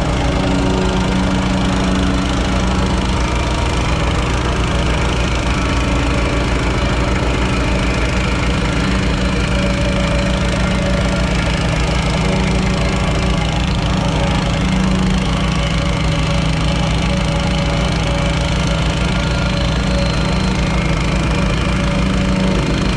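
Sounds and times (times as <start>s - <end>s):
construction equipment engine droning: 0.0s - 22.9s.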